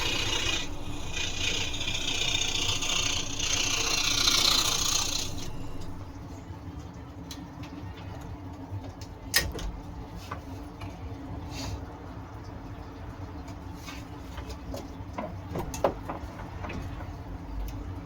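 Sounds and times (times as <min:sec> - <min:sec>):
scroll saw cutting wood: 0:00.0 - 0:06.2
low hum: 0:00.0 - 0:06.7.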